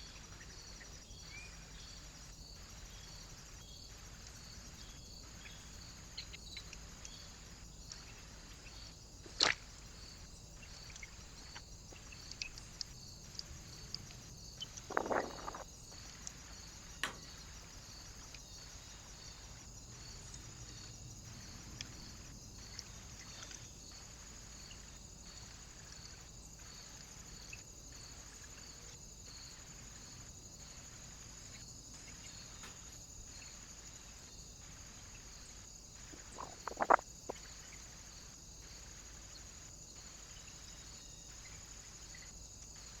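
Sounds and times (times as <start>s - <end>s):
faint steady hiss: 0.0s - 43.0s
soft regular pulse: 11.4s - 18.3s, 36.0s - 37.7s
sharp taps or knocks: 17.0s - 17.4s.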